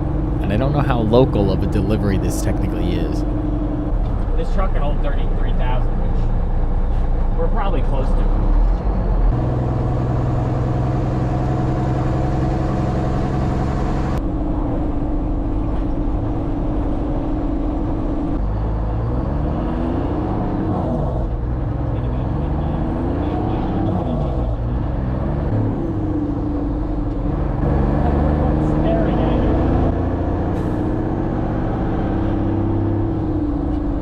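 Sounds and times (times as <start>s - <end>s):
truck diesel engine revving: 27.2s - 33.4s.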